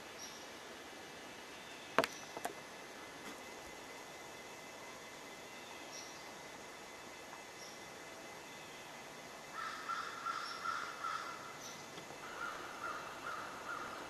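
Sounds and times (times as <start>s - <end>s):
bird harsh cawing calls: 9.5s - 14.0s.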